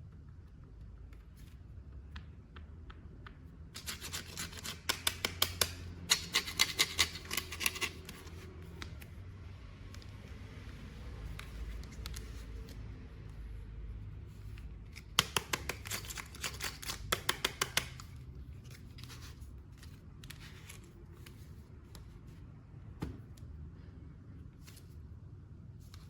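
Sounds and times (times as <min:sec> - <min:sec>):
low room hum: 0:00.0 - 0:26.0
scissors snipping packaging: 0:03.8 - 0:09.1, 0:14.9 - 0:21.0.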